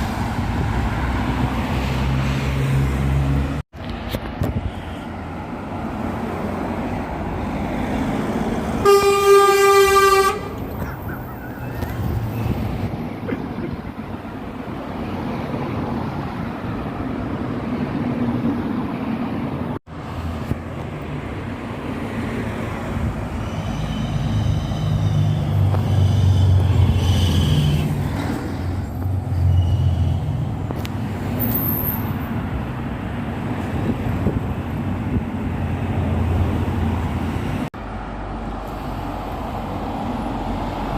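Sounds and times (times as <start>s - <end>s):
vehicle noise: 0.0s - 40.9s
horn blast: 8.8s - 10.6s.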